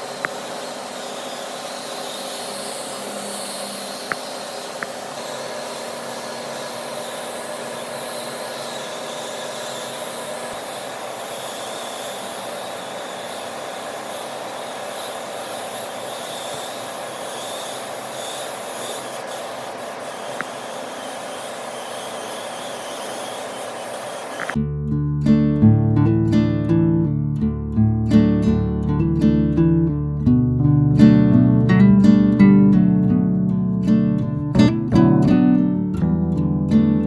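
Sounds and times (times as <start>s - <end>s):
machine running with hiss: 0.0s - 24.6s.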